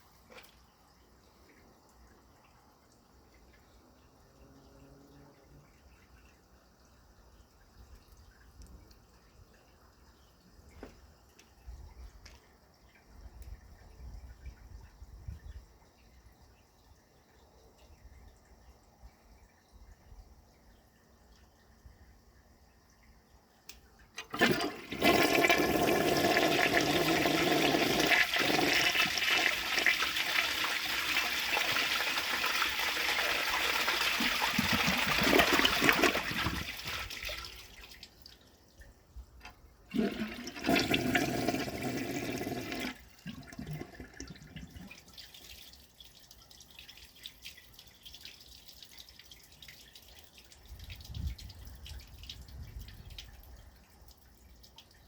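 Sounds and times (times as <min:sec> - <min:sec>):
running water: 0:00.0 - 0:55.0
toilet flushing: 0:24.1 - 0:38.0, 0:39.9 - 0:45.1.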